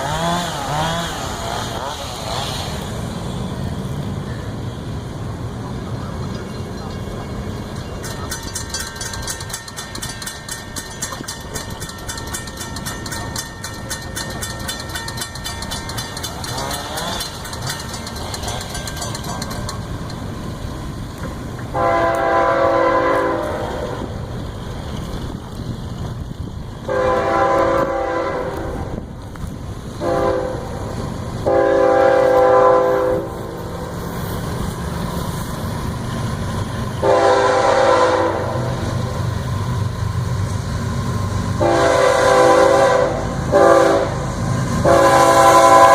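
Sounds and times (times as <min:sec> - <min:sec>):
train rumbling: 0:00.0 - 0:45.9
locomotive horn blasts: 0:21.7 - 0:24.0, 0:26.9 - 0:29.0, 0:30.0 - 0:30.8, 0:31.4 - 0:33.4, 0:37.0 - 0:38.8, 0:41.6 - 0:44.2, 0:44.8 - 0:45.9.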